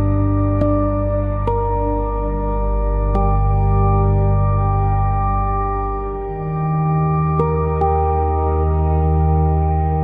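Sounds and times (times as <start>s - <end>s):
steady low drone: 0.0s - 10.0s.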